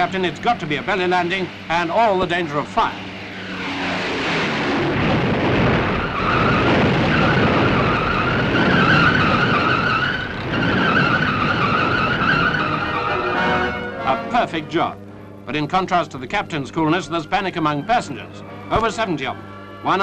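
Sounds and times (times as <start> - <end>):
airplane scraping on runway: 0.0 - 14.8.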